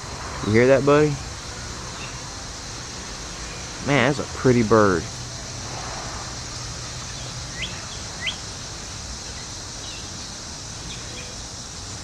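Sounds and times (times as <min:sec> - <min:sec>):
steady outdoor hiss: 0:00.0 - 0:12.0
cardinal chirping: 0:06.8 - 0:08.5.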